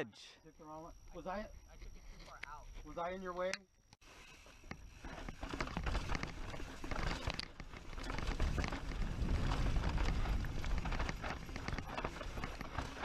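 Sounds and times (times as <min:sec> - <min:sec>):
crunching on rocky dirt trail: 0:04.0 - 0:13.0
wind rumble on microphone: 0:07.2 - 0:13.0.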